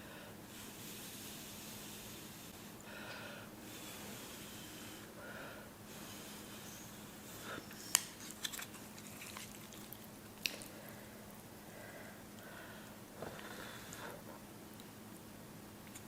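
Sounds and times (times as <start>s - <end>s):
chewing noodles: 8.4s - 10.8s.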